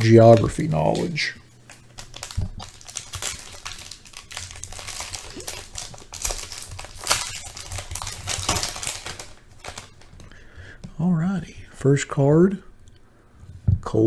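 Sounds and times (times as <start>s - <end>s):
wrapper tearing and crinkling: 0.0s - 10.3s.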